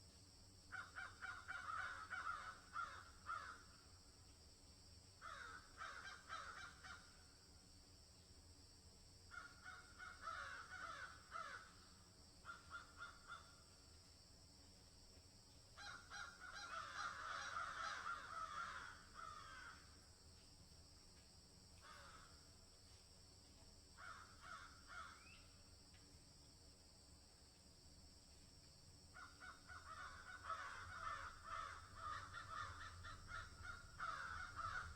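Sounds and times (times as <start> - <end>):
faint bird calls: 0.7 - 3.8, 9.3 - 13.9, 15.8 - 20.0, 24.0 - 25.6, 29.1 - 34.9.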